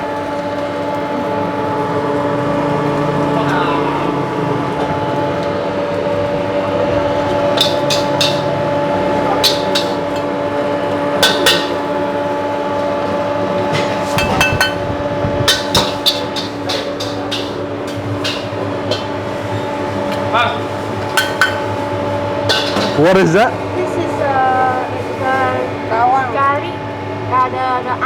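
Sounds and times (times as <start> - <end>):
steady hum: 0.0 - 28.0
metal spatula clanking on wok: 7.2 - 12.0, 13.6 - 23.4.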